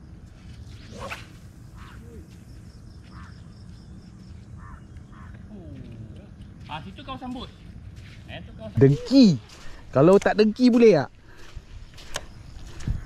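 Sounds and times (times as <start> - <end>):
birds calling: 0.9 - 6.6.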